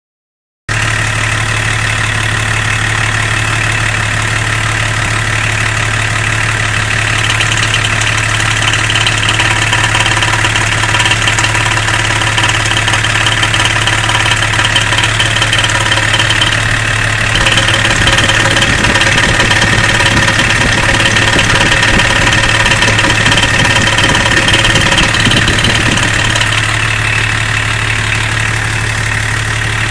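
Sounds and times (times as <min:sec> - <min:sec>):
car engine idling: 0:00.7 - 0:29.9
rapid engine knocking: 0:01.3 - 0:29.9.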